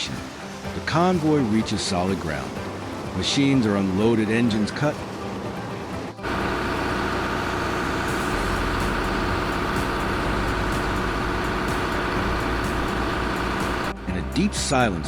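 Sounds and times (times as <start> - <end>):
heavy machine engine running: 5.0 - 14.2.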